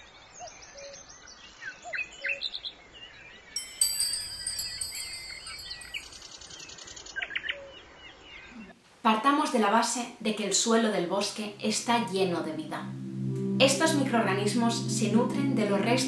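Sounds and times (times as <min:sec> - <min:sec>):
bright high ringing: 0:03.6 - 0:06.6, 0:12.0 - 0:16.0.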